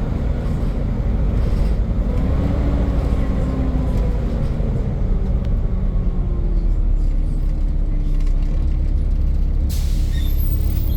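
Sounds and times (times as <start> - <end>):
bus diesel engine rumble: 0.0 - 10.9.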